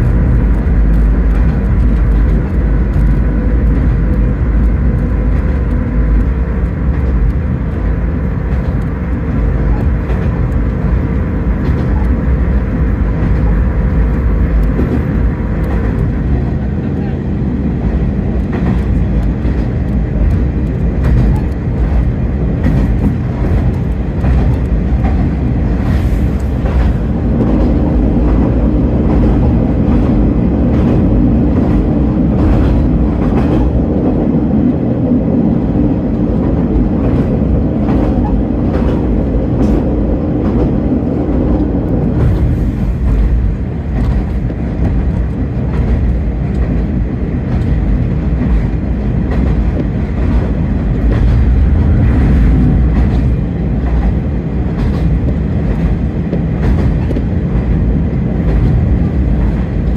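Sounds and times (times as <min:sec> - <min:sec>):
diesel engine drone: 0:00.0 - 0:59.9
wheels rumbling on track: 0:00.0 - 0:59.9.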